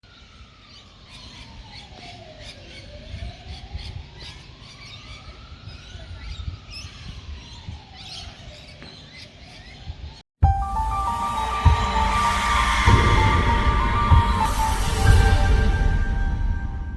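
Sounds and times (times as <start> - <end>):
birds chirping: 0.7 - 10.2
siren wailing: 10.9 - 16.9.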